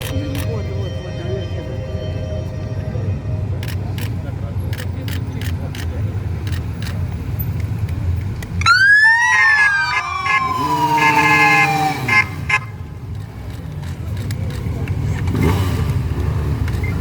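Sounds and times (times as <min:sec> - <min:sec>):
steady horn-like tone: 0:00.0 - 0:04.2
low engine rumble: 0:00.0 - 0:08.7
electronic siren wail: 0:08.6 - 0:12.5.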